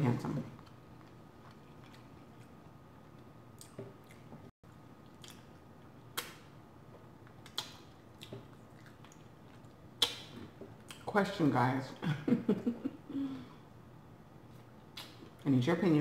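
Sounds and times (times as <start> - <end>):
chewing with wet mouth smacks: 0.6 - 6.5, 7.2 - 11.1.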